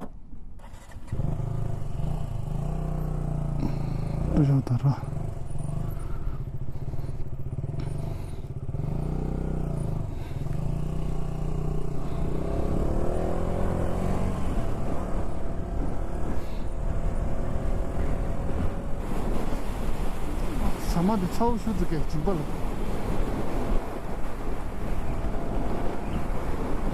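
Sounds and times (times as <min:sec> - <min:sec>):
motorcycle engine running: 0:00.8 - 0:19.5.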